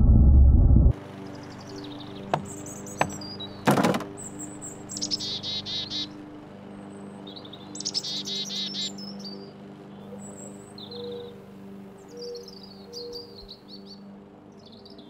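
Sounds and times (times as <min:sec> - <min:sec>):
steady low hum: 0:00.0 - 0:01.3
songbirds trilling: 0:01.1 - 0:15.0.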